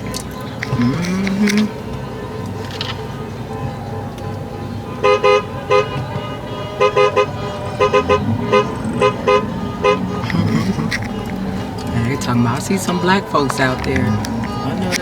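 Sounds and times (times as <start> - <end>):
car horn short beeps: 0.0 - 15.0
steady low rumble: 6.4 - 15.0.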